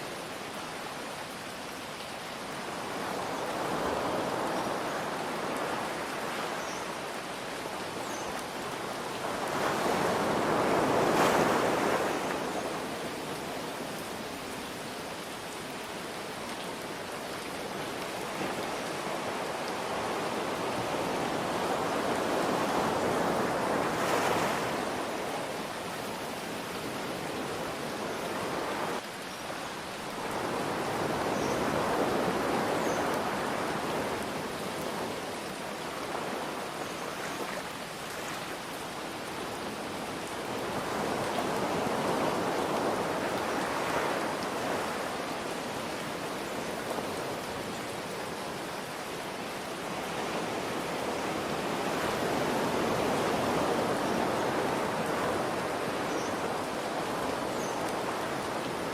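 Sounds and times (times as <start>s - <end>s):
ocean waves washing in: 8.7s - 14.6s, 17.9s - 29.0s.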